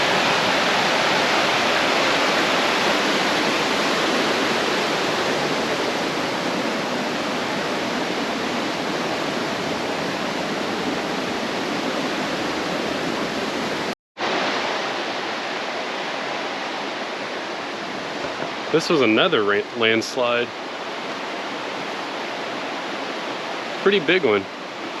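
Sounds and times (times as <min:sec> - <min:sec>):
creek water flowing over rocks: 0:00.0 - 0:25.0.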